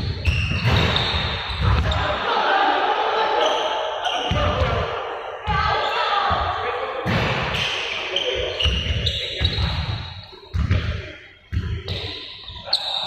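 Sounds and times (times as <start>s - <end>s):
balls bouncing on court floor: 0.0s - 2.0s, 4.2s - 4.9s, 8.4s - 12.2s.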